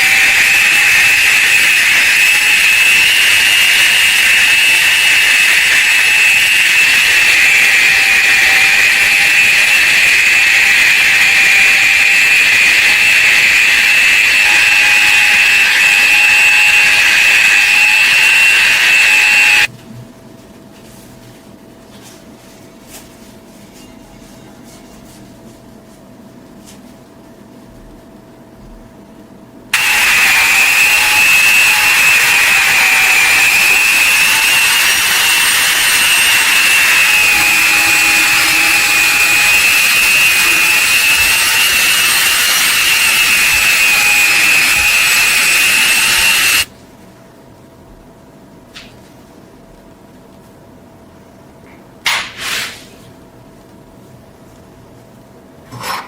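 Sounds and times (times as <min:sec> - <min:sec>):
power tool high whine: 0:00.0 - 0:19.7, 0:29.8 - 0:46.7.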